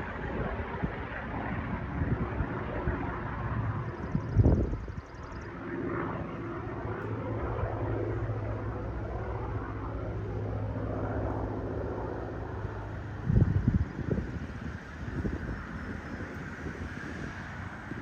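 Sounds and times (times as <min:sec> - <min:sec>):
wind buffeting microphone: 0:00.0 - 0:08.5, 0:09.1 - 0:18.0
piston aircraft engine running: 0:00.0 - 0:18.0.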